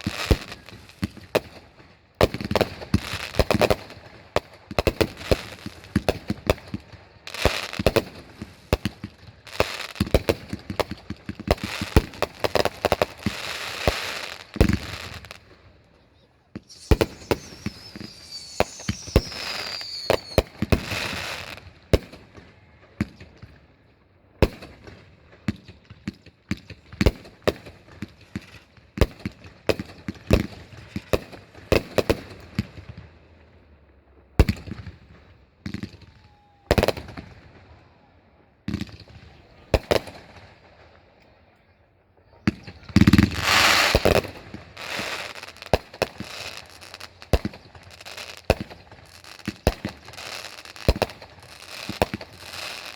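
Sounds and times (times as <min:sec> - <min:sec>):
crackling firework bangs: 0:00.0 - 0:15.5, 0:16.5 - 0:22.4, 0:24.4 - 0:33.2, 0:42.5 - 0:52.9
fireworks bangs: 0:00.0 - 0:22.2, 0:38.7 - 0:40.8, 0:42.3 - 0:52.9
firework whistle falling: 0:16.6 - 0:21.4.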